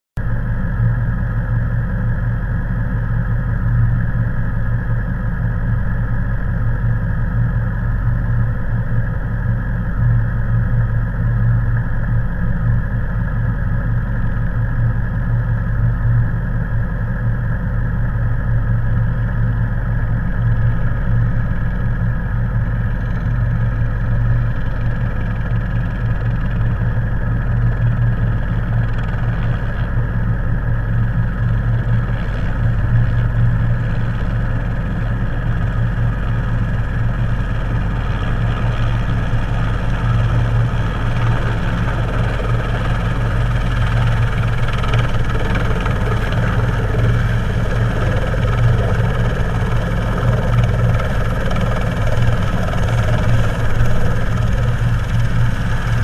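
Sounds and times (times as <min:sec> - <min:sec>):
car engine idling: 0:22.9 - 0:56.0.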